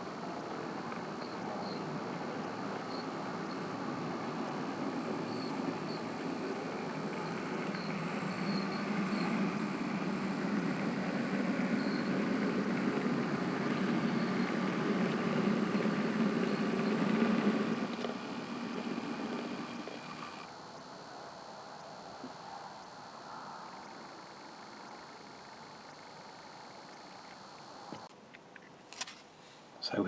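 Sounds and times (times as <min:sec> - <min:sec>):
model train motor hum: 0:02.4 - 0:20.5.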